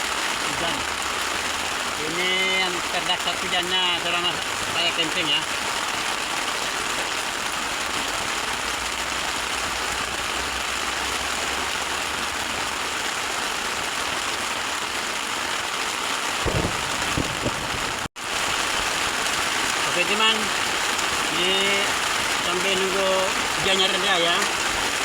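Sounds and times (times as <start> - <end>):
heavy rain on a tent: 0.0 - 25.0
dull thumps: 16.5 - 18.0.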